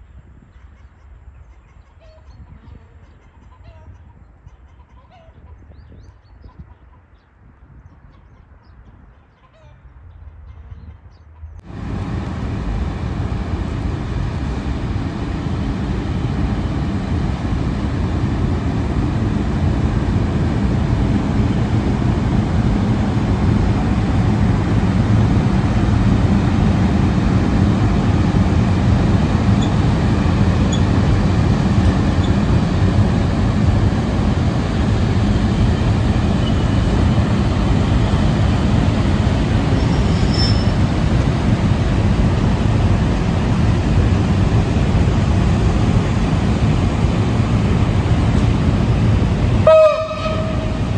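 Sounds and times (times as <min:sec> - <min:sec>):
electric locomotive drone: 0:11.6 - 0:50.9.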